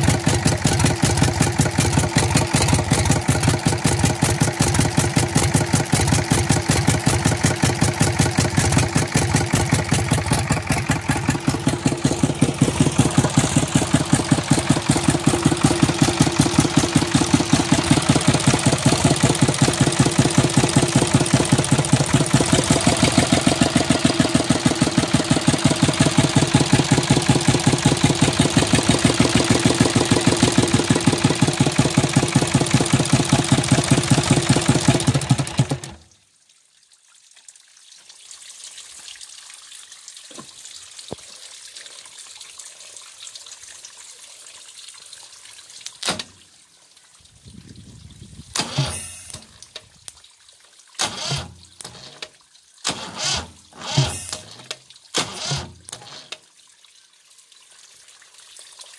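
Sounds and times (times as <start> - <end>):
diesel tractor engine running: 0.0 - 35.9.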